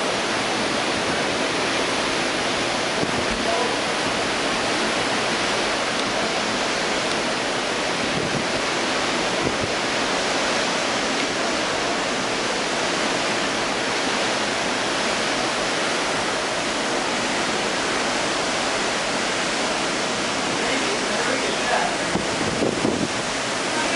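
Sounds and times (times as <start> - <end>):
sea rushing around ship: 0.0 - 23.9
wind rushing: 7.6 - 11.0, 21.8 - 23.6.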